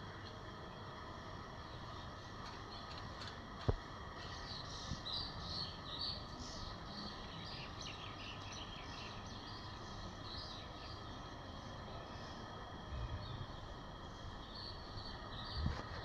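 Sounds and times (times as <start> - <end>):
small birds chirping: 4.2 - 16.0.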